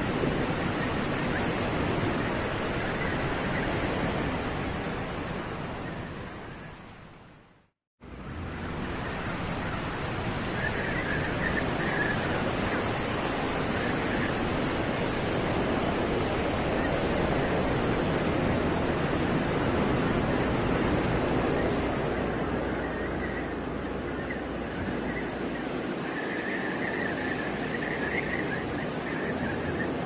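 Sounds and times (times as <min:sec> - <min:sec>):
city traffic: 0:07.0 - 0:11.3.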